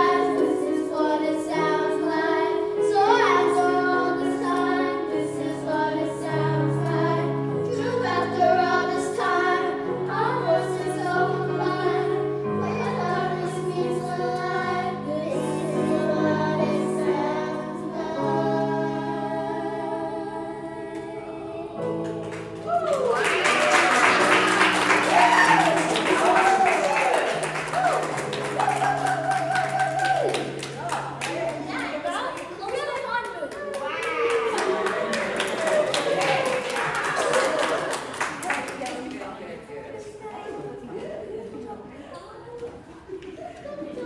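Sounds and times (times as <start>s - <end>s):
choir singing: 0.0s - 31.8s, 34.3s - 39.7s
applause: 22.0s - 39.5s.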